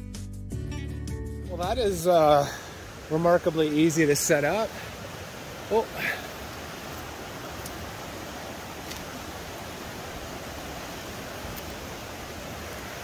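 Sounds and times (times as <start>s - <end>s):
river rushing: 1.5s - 13.0s
faint clicks: 7.6s - 7.8s.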